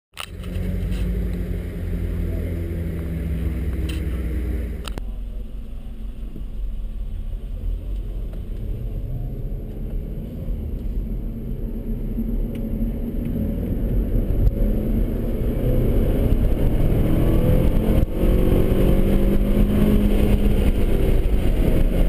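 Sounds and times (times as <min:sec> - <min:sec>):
road noise: 0:00.1 - 0:22.0
car engine running: 0:00.2 - 0:22.0
car engine idling: 0:00.3 - 0:16.5.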